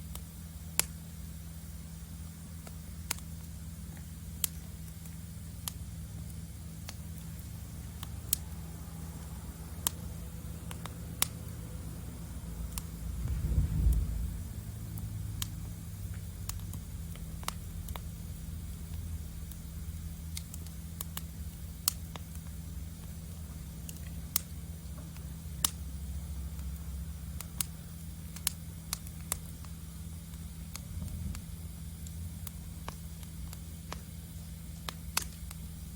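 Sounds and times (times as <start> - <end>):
wood fire crackling and popping: 0.0 - 35.9
low rumble: 12.5 - 15.9.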